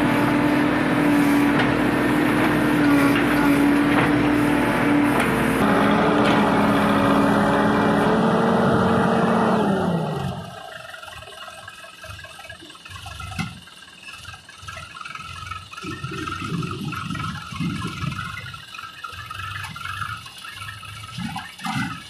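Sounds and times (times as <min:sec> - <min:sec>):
backhoe diesel engine revving: 0:00.0 - 0:13.6.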